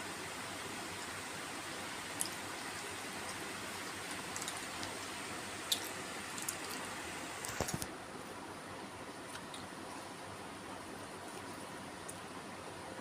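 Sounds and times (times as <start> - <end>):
steady hiss: 0.0 - 9.0
wet chewing mouth sounds: 2.1 - 6.9.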